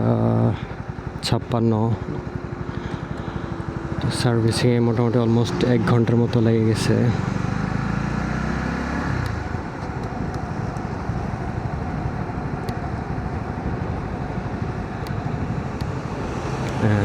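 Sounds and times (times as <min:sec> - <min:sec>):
motorcycle engine running: 0:00.0 - 0:17.0
wind and road rumble: 0:00.0 - 0:17.0.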